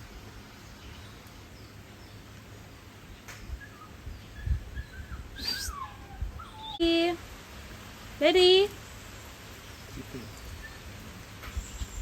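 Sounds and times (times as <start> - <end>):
faint outdoor ambience: 0.0 - 12.0
bird chirps: 3.2 - 6.8.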